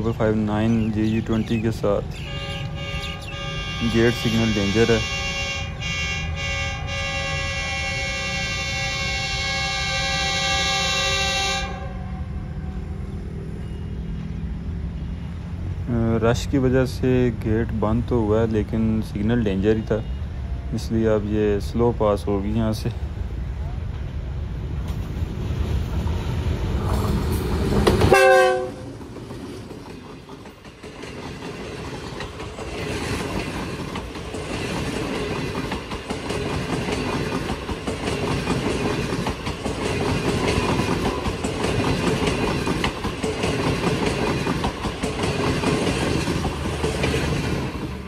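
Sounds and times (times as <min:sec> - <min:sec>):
diesel locomotive engine rumble: 0:00.0 - 0:48.0
train horn blast: 0:02.2 - 0:12.6, 0:28.0 - 0:28.9
train wheels clicking over rail joints: 0:26.8 - 0:48.0.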